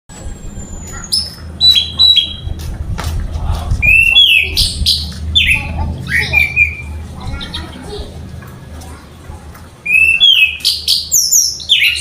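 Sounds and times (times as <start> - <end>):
steady low hum: 0.1 - 9.9
thrush singing whistled notes: 3.8 - 7.0, 9.8 - 12.0.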